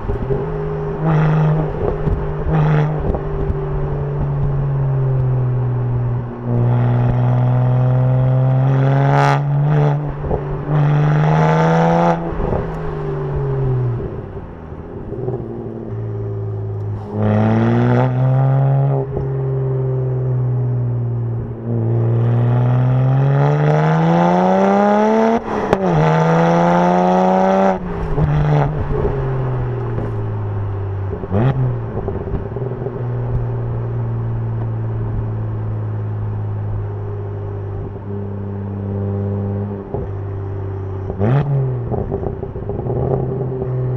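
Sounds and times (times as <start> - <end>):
car engine revving: 0.0 - 43.9
exhaust crack: 27.7 - 38.2.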